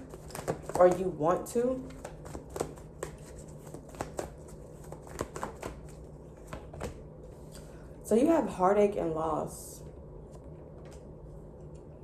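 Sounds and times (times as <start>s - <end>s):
cards being shuffled: 0.0s - 1.1s, 1.9s - 7.0s.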